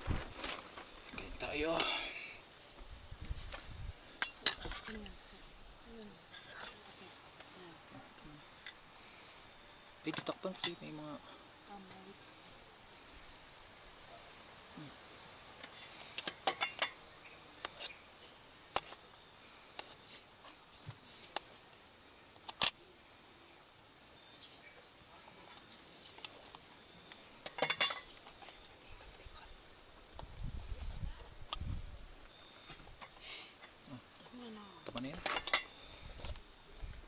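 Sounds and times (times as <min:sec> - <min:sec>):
high insect buzz: 0:00.0 - 0:37.0
cutlery clinking on plates: 0:27.4 - 0:28.1.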